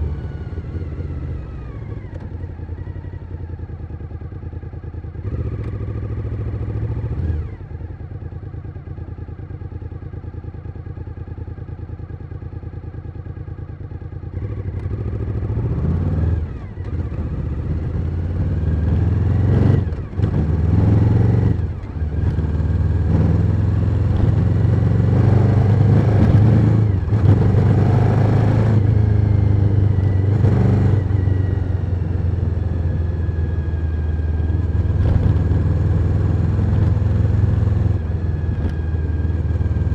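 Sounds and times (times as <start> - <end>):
motorcycle engine revving: 5.1 - 8.3, 14.3 - 39.9.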